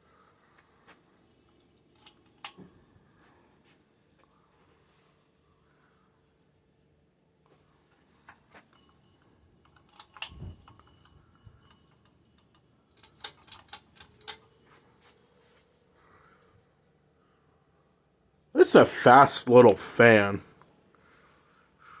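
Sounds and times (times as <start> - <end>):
ceiling fan humming: 0.0 - 17.4.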